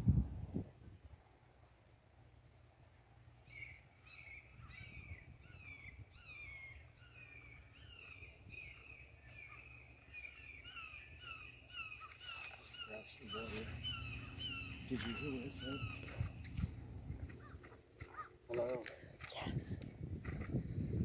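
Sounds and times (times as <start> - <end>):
low outdoor rumble: 0.0 - 21.0
faint bird calls: 3.4 - 19.5.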